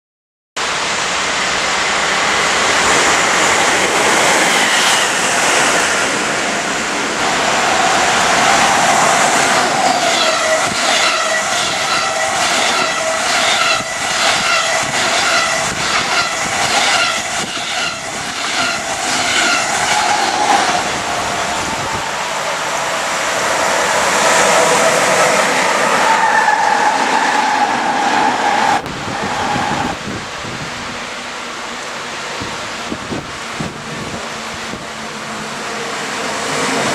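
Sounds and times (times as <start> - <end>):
electric train whine: 0.6 - 36.9
train wheels clickety-clack: 7.3 - 22.0, 32.4 - 35.0.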